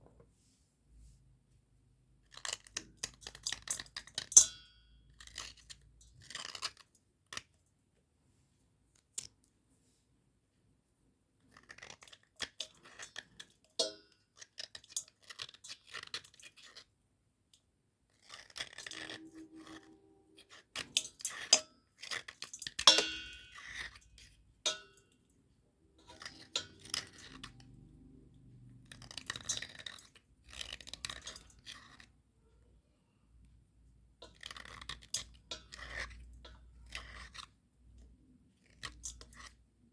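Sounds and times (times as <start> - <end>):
slate pencils crunching: 18.2 - 24.4, 26.0 - 32.1, 34.2 - 39.6.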